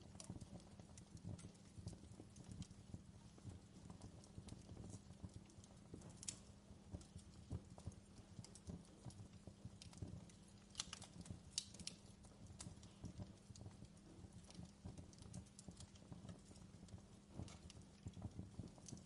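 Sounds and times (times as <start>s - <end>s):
fireplace fire crackling: 0.0s - 19.0s.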